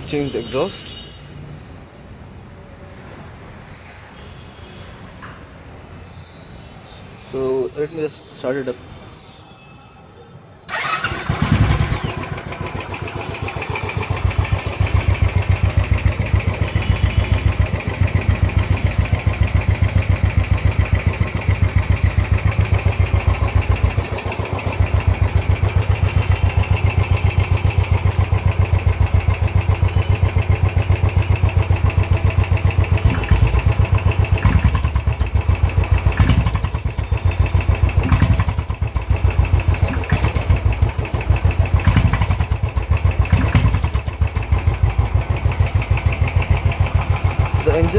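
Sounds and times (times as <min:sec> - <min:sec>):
motorcycle engine idling: 0:10.7 - 0:47.9.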